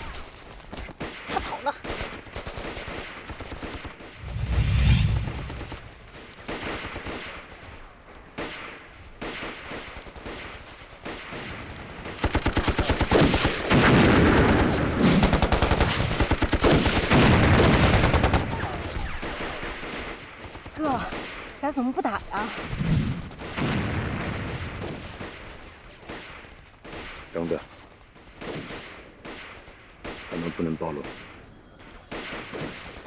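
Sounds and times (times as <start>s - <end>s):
machine-gun fire: 0.0s - 7.8s, 8.4s - 21.5s
rifle shots: 0.0s - 27.6s, 32.1s - 33.0s.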